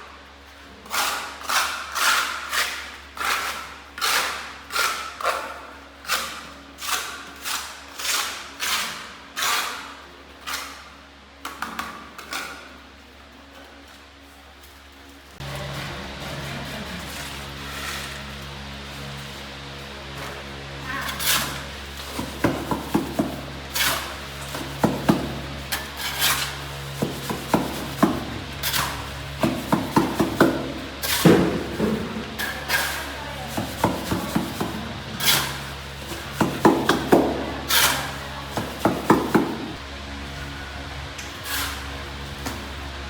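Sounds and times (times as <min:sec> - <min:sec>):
hand tool scraping strokes: 0:00.6 - 0:10.8, 0:21.0 - 0:39.8, 0:41.4 - 0:42.6
low steady hum: 0:12.2 - 0:43.0.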